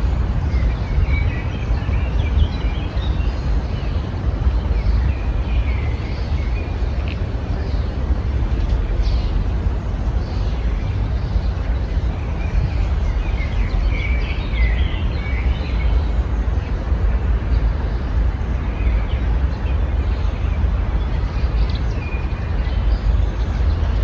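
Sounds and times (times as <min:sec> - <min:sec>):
small birds chirping: 0:00.0 - 0:24.0
steady low rumble: 0:00.0 - 0:24.0.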